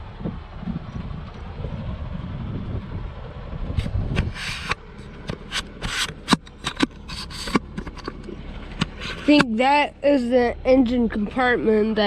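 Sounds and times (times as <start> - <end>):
low rumble: 0.0 - 12.0
rubbing and scraping: 3.7 - 9.6
sharp clicks: 3.8 - 9.5.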